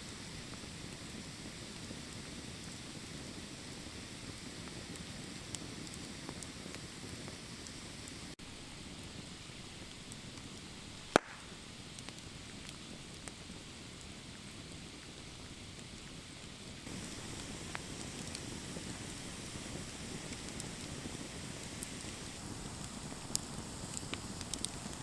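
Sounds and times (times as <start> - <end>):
campfire crackling: 0.0 - 25.0
loud sharp pop: 11.1 - 11.5.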